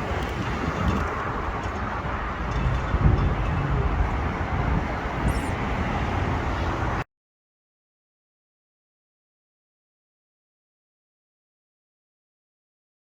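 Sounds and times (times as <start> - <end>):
wind buffeting microphone: 0.0 - 7.0
road traffic: 0.0 - 7.1.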